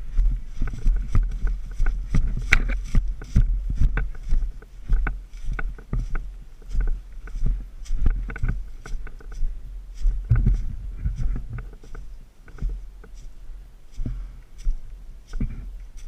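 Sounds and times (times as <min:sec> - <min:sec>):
low rumble: 0:00.0 - 0:15.8.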